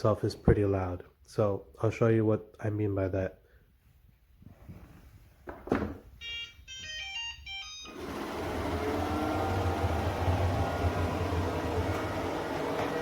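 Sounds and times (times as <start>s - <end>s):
robot vacuum motor humming: 7.9s - 13.0s.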